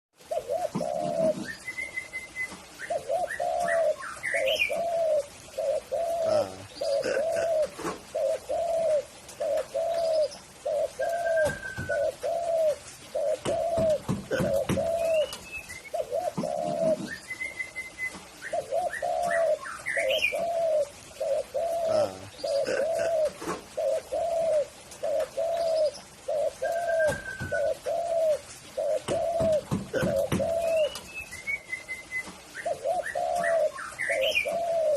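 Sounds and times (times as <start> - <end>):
dove cooing: 0.2 - 34.9
small birds chirping: 0.2 - 34.9.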